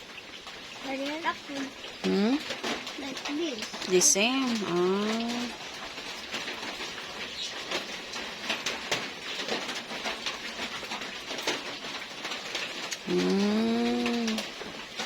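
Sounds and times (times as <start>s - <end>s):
birds chirping: 3.7s - 5.6s, 6.6s - 8.1s.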